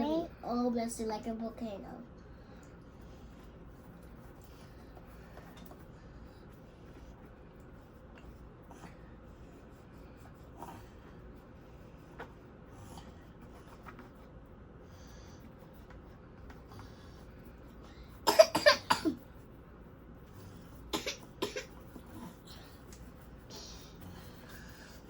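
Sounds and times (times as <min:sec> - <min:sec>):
person coughing: 0:18.2 - 0:19.2, 0:20.9 - 0:21.8.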